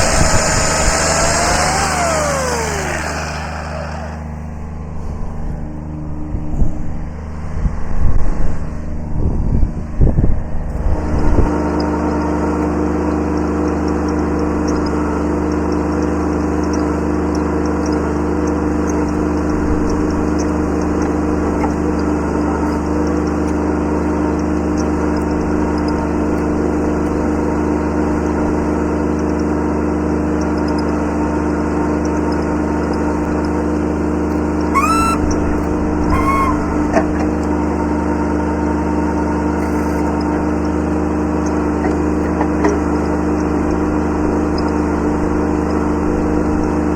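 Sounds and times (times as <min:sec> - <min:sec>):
brief rising squeals: 0:00.0 - 0:04.7, 0:34.7 - 0:37.2, 0:39.6 - 0:40.2
diesel tractor engine running: 0:00.0 - 0:46.9.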